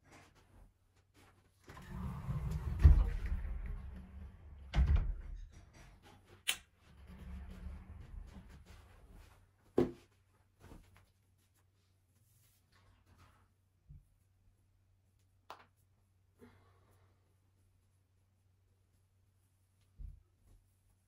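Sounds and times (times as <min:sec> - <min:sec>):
rustling and shuffling: 0:00.0 - 0:14.4.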